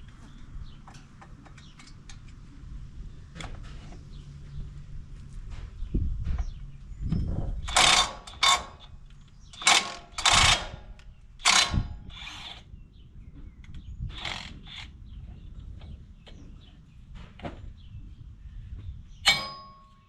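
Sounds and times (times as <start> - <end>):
ratchet wrench clicking: 7.7 - 8.7, 9.6 - 10.7.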